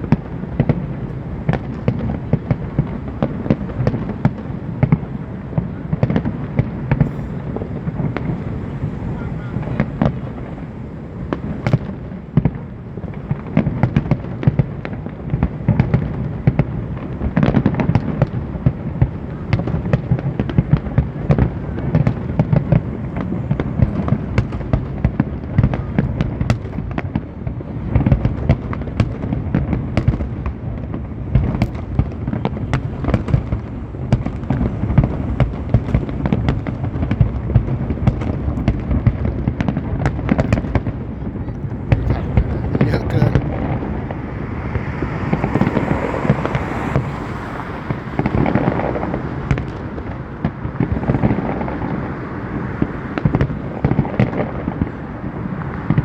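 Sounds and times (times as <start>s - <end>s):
fireworks shell bursts and crackles: 6.0s - 8.9s
low rumble: 41.5s - 48.2s.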